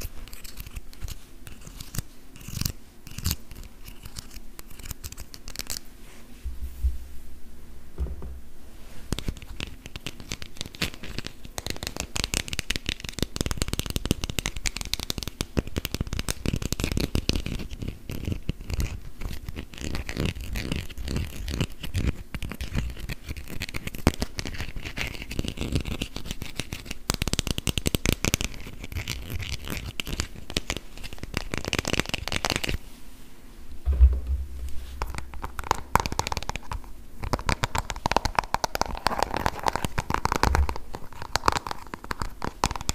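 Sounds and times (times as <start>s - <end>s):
dull knock: 8.0s - 8.4s, 33.9s - 35.4s.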